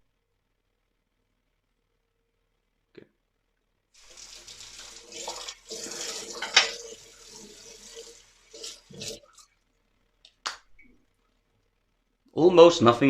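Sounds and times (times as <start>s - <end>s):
tap water running into sink: 4.0s - 9.5s.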